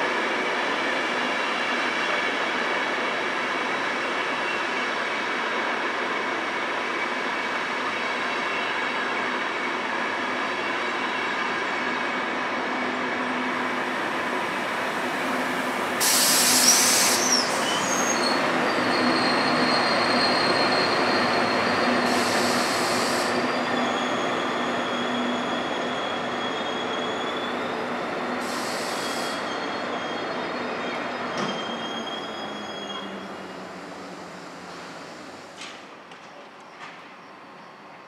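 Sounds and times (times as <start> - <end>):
train rolling noise: 11.4 - 38.0
wheel and brake squeal: 16.1 - 33.7.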